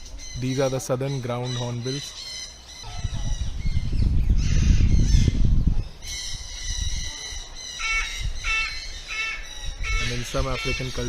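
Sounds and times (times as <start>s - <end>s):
birds calling: 0.0s - 11.0s
loud low rumble on microphone: 2.8s - 11.0s.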